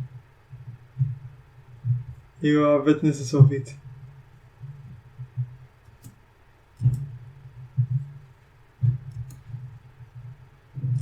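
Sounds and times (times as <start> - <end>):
low hum: 0.0 - 11.0
computer mouse clicks: 6.8 - 7.1, 9.1 - 9.6.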